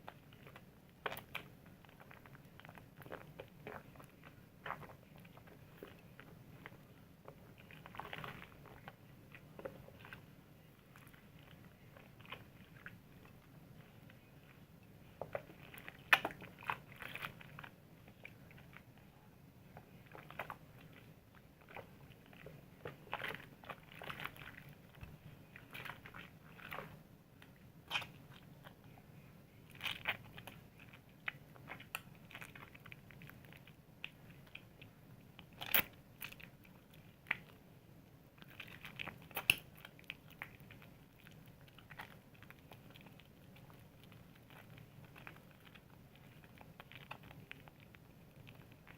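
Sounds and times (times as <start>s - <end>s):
soap lathering squishes: 0.0s - 29.0s, 29.6s - 48.9s.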